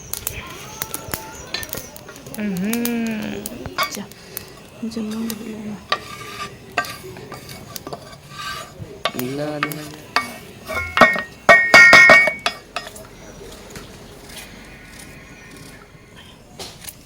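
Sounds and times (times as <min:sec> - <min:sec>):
spoon clanking against pot: 0:03.7 - 0:04.0, 0:05.1 - 0:13.1
metal spoon scraping a pot: 0:03.7 - 0:13.1
loud ringing knocks: 0:10.8 - 0:12.5.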